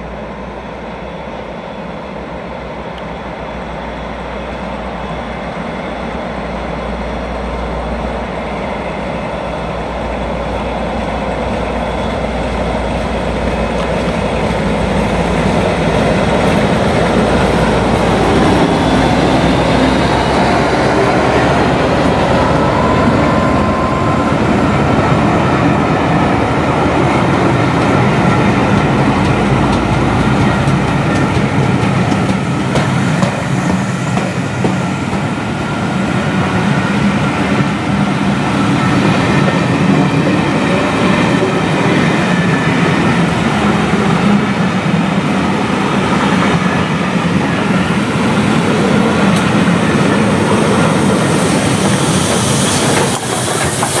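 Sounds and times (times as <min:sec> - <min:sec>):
train wheels rumbling on rails: 0:00.0 - 0:54.0
steam locomotive hiss: 0:48.0 - 0:54.0.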